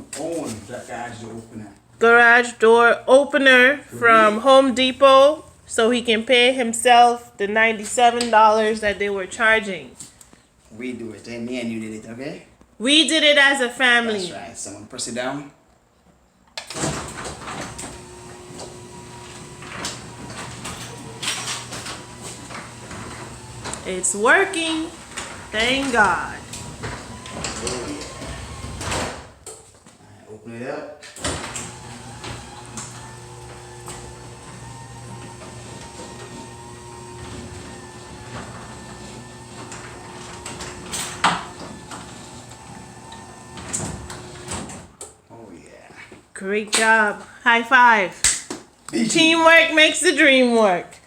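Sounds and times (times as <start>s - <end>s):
garage door motor hum: 16.7s - 29.2s, 31.2s - 44.9s
door clanking and rattling: 16.7s - 29.4s, 31.2s - 44.9s.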